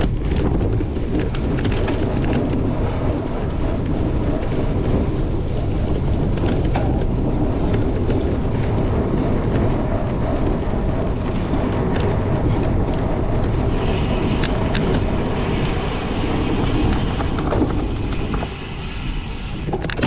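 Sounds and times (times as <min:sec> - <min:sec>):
bike rumbling and rattling: 0:00.0 - 0:20.0
wind buffeting microphone: 0:00.0 - 0:20.0.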